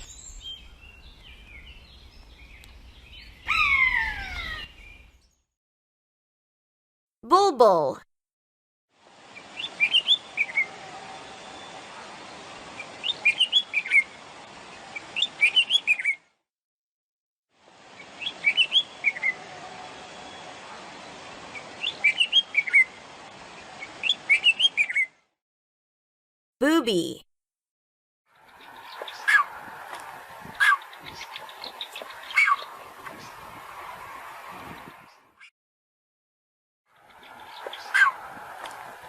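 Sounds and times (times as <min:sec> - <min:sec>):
bird chirping song: 0:00.0 - 0:05.5, 0:09.3 - 0:16.3, 0:17.9 - 0:20.5, 0:21.5 - 0:25.2, 0:30.4 - 0:33.5, 0:37.0 - 0:38.2.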